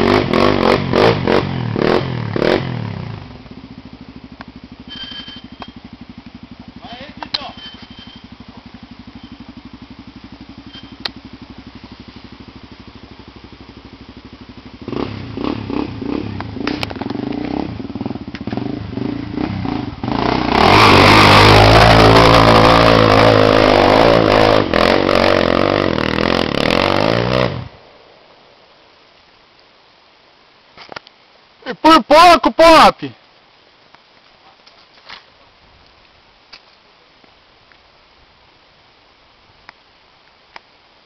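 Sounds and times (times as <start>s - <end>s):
motorcycle engine revving: 0.0s - 27.8s.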